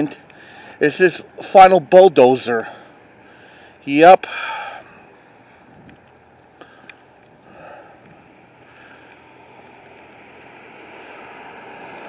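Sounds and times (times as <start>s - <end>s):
outdoor rushing noise: 0.0s - 12.0s
faint clicks: 5.8s - 7.4s, 8.0s - 10.1s.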